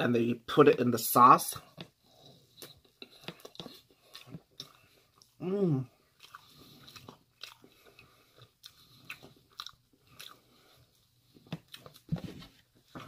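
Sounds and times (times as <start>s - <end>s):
chewing mouth clicks: 6.2s - 10.5s.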